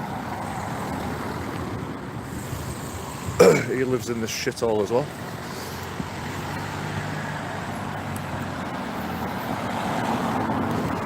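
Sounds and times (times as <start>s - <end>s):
motor vehicle passing: 5.0s - 11.0s.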